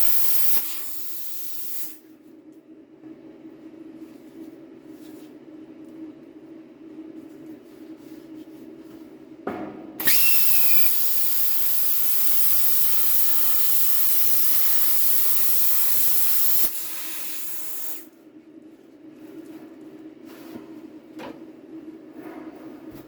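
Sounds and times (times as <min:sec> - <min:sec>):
loud steady hiss: 0:00.0 - 0:02.0, 0:10.0 - 0:18.1.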